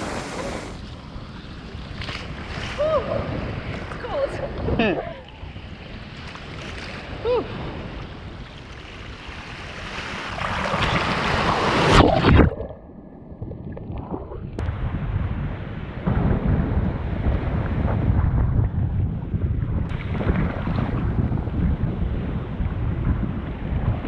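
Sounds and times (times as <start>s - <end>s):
waves washing on beach: 0.0s - 4.7s
wind buffeting microphone: 13.3s - 24.0s.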